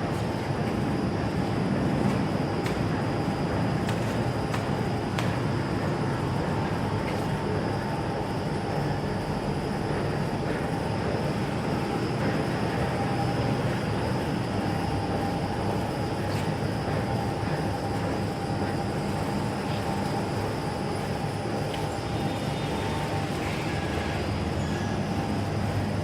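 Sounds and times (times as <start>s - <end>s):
faint steady machine whine: 0.0s - 26.0s
machine mechanical noise: 0.0s - 26.0s.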